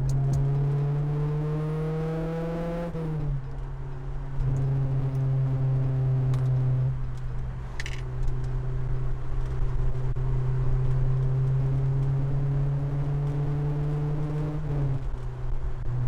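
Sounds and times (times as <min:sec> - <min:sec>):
car engine at raised revs: 0:00.0 - 0:03.5, 0:09.8 - 0:16.0.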